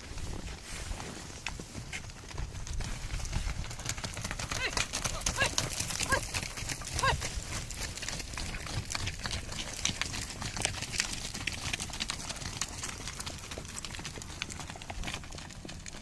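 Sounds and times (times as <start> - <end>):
horse hoofbeats clip-clopping: 0.0 - 16.0.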